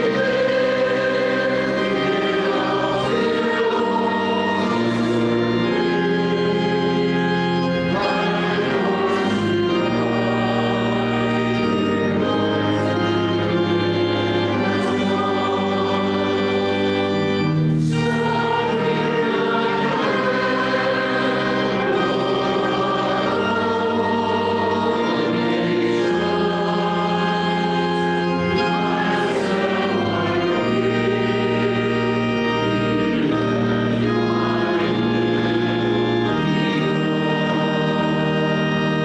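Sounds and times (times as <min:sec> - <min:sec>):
pipe organ: 0:00.0 - 0:39.0
voices singing a hymn: 0:00.0 - 0:39.0.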